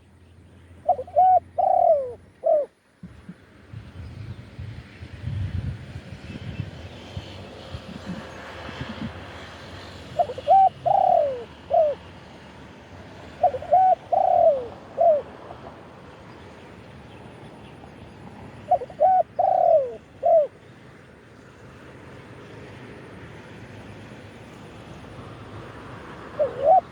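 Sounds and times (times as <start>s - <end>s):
dove cooing: 0.8s - 2.8s, 7.8s - 15.9s, 18.2s - 20.6s, 26.0s - 26.9s.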